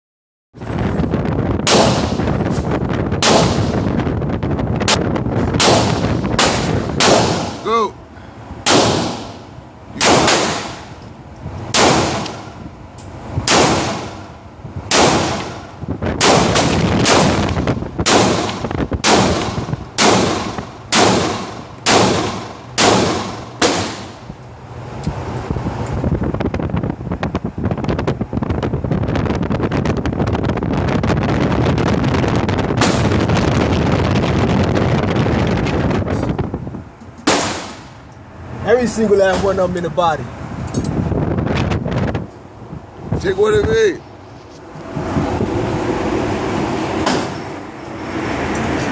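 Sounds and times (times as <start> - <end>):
gunshots: 1.6 - 2.3, 3.2 - 3.8, 5.6 - 7.6, 8.6 - 9.4, 10.0 - 10.9, 11.7 - 12.5, 13.5 - 14.2, 14.9 - 24.2, 37.3 - 38.0.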